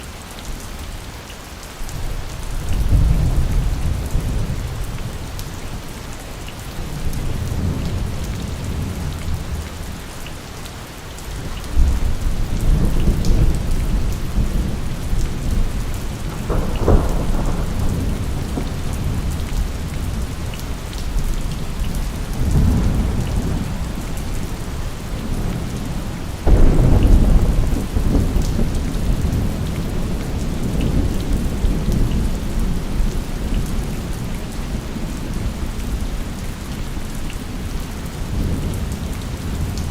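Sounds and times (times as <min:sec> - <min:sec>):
heavy rain: 0:00.0 - 0:39.9
thunder rumbling: 0:11.8 - 0:36.0
sharp thunderclaps: 0:12.7 - 0:20.4, 0:22.4 - 0:24.0, 0:25.3 - 0:32.8.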